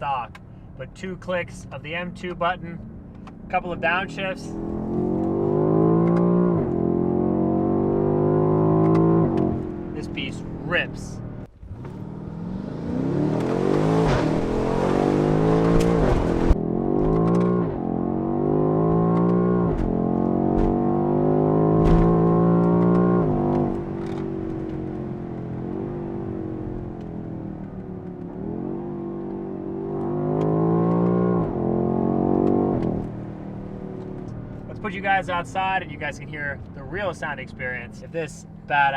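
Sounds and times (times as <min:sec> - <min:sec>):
car engine accelerating: 0:02.2 - 0:38.9
exhaust crack: 0:08.7 - 0:17.8, 0:21.7 - 0:28.6.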